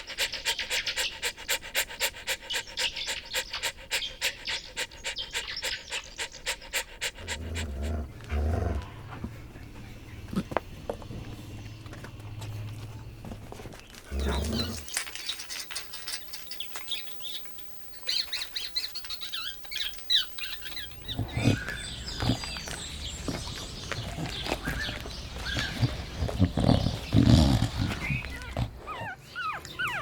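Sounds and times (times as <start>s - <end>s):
small birds chirping: 0.0s - 30.0s
puppies whimpering and yipping: 14.2s - 30.0s.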